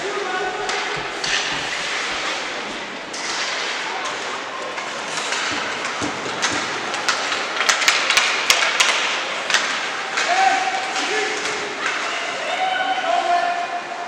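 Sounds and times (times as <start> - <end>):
crowd and game play in a hall: 0.0 - 14.0
sharp clacks and knocks: 4.8 - 10.3.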